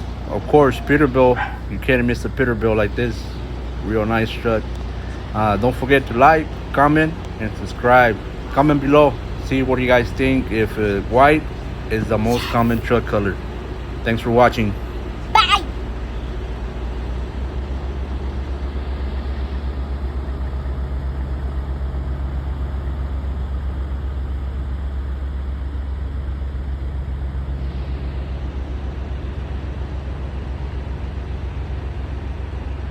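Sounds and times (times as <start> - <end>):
diesel truck engine idling: 0.0 - 19.0.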